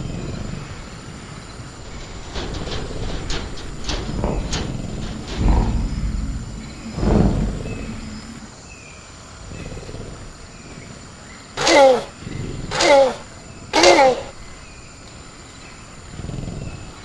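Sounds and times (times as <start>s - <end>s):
dinosaur growling: 0.0s - 8.8s
crickets chirring: 0.0s - 17.0s.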